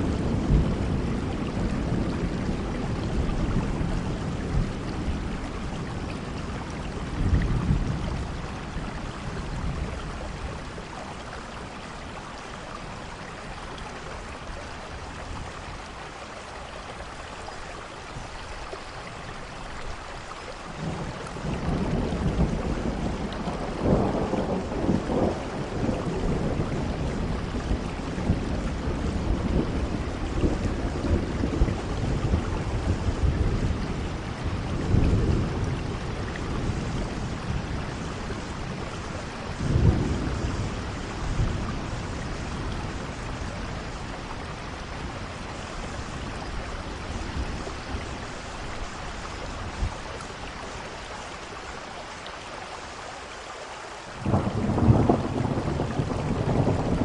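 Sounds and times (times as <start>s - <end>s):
rolling thunder rumbles: 0.0s - 11.8s, 20.7s - 50.3s, 54.2s - 57.0s
steady rainfall: 0.0s - 57.0s.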